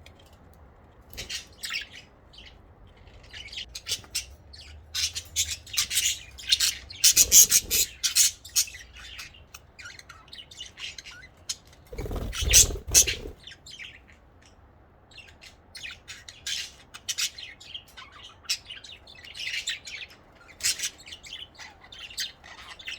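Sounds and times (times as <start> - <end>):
budgerigars chirping: 1.2 - 14.6.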